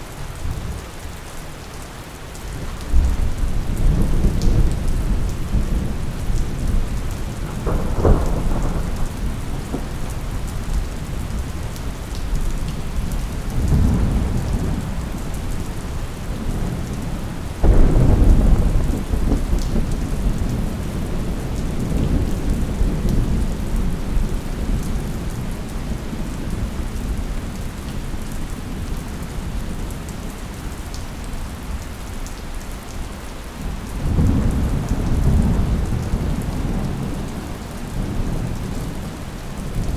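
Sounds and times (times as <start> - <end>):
steady rain: 0.0 - 39.9
thunder rumbling: 2.7 - 25.5
sharp thunder crack: 7.4 - 10.0, 17.6 - 20.7.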